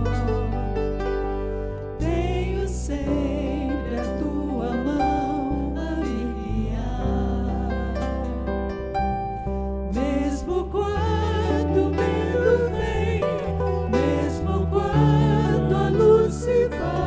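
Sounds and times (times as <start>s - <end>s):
instrumental backing with bass: 0.0s - 17.0s
person singing: 10.0s - 17.0s.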